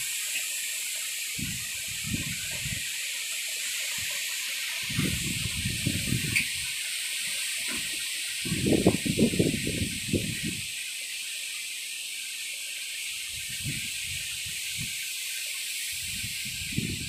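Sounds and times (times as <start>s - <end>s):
strong gusty wind: 1.4s - 2.8s, 4.9s - 6.7s, 8.4s - 10.7s, 13.3s - 15.0s, 16.0s - 17.0s
wind buffeting microphone: 1.4s - 2.8s, 4.9s - 6.7s, 8.4s - 10.7s, 13.3s - 15.0s, 16.0s - 17.0s.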